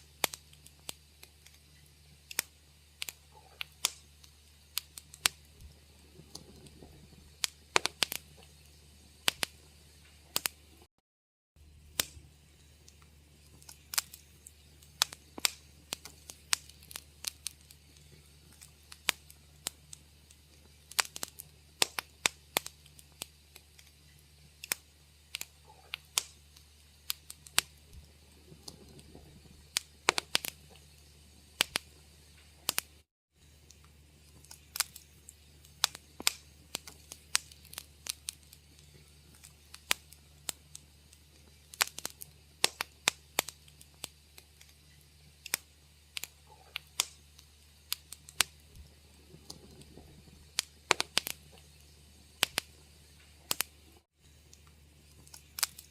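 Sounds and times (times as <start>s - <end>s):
low steady hum: 0.0s - 10.9s, 11.6s - 55.9s
wood fire crackling: 0.0s - 10.9s, 11.6s - 55.9s.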